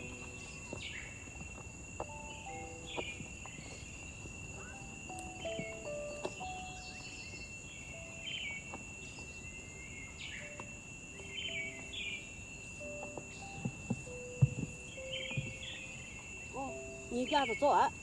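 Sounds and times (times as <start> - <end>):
birds chirping: 0.0 - 18.0
insects droning: 0.0 - 18.0
sharp knocks: 13.1 - 15.7.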